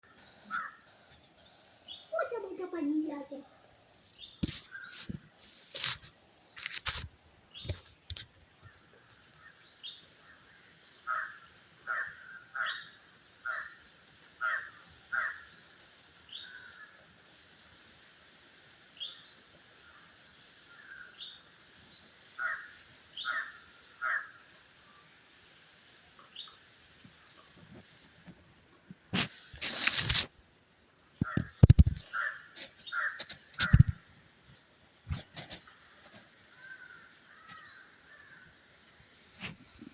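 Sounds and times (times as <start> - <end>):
bird calling: 0.0 - 0.9, 31.2 - 34.0
sharp knocks: 33.6 - 34.0.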